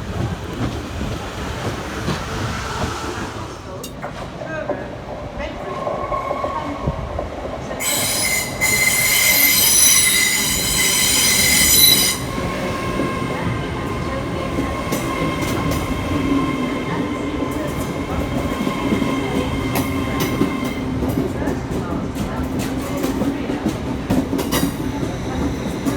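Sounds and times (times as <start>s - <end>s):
train rumbling: 0.0s - 25.9s
train wheels squealing: 7.8s - 13.4s.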